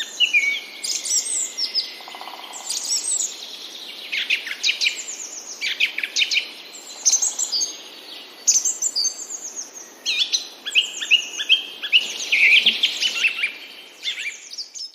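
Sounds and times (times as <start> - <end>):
birds singing and chirping: 0.0 - 14.9.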